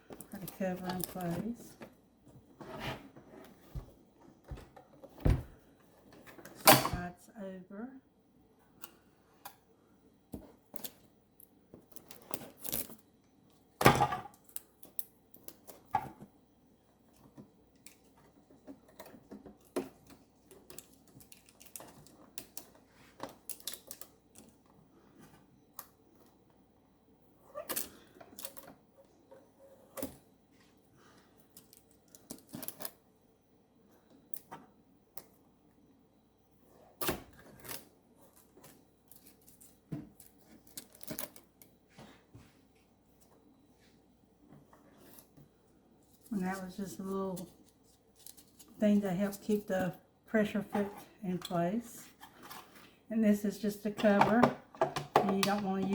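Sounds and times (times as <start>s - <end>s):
plastic parts clicking and rustling: 17.2s - 24.7s.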